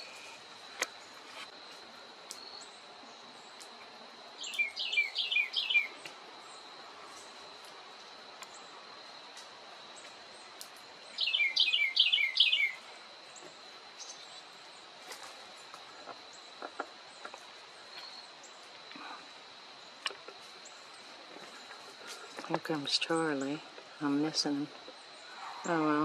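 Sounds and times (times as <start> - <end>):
faint bird chirps: 4.4 - 6.6, 11.1 - 14.6
songbird whistled phrase: 11.2 - 12.8.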